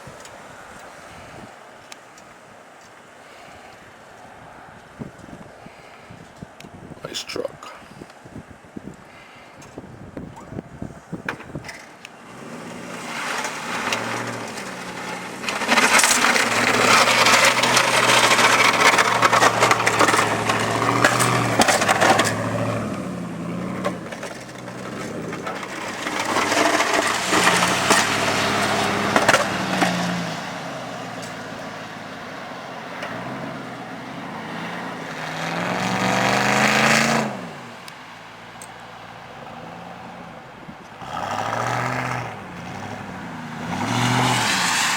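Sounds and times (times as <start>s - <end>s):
plow scraping snow: 10.9s - 44.9s
pickup engine revving: 12.2s - 44.9s.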